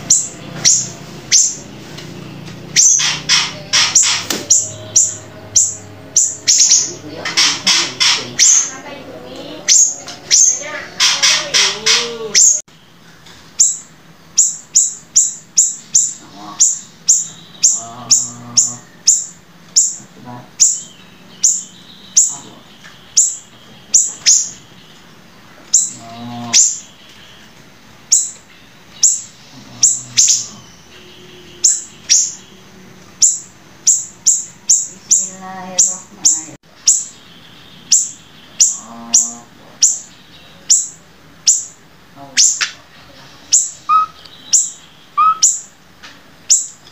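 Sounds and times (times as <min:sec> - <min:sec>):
soft warbled bird phrases: 0:00.0 - 0:12.7, 0:13.6 - 0:27.5, 0:29.0 - 0:45.8.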